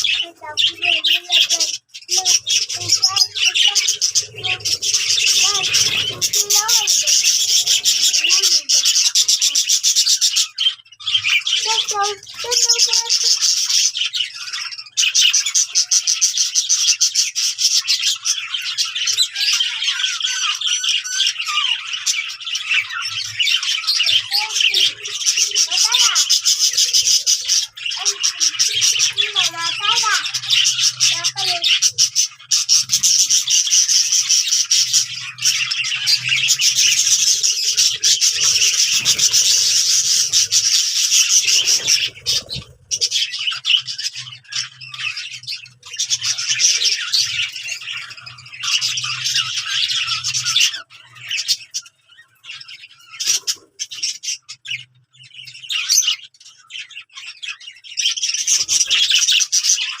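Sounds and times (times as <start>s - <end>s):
budgerigars chattering and chirping: 0.0s - 60.0s.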